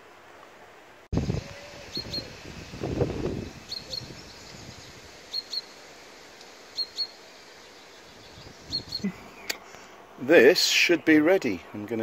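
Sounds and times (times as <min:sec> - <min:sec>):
small bird chirping: 0:01.2 - 0:02.4, 0:03.4 - 0:05.8, 0:06.7 - 0:09.6.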